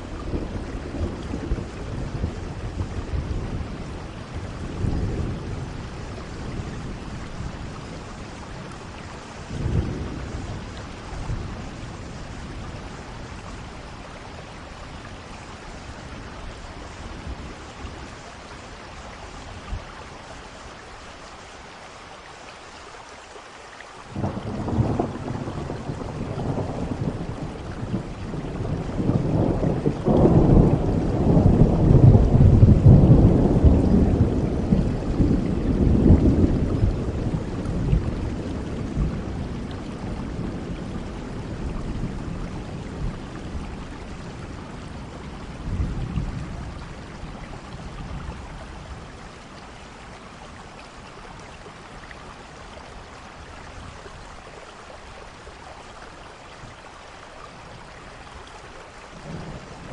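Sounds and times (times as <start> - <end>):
steady rain: 0.0 - 59.9
thunder rolling: 24.2 - 43.7.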